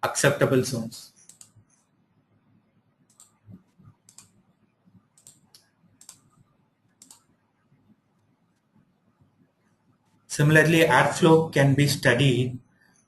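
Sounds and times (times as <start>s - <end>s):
light computer clicks: 1.2s - 1.6s, 3.1s - 4.4s, 5.1s - 7.3s.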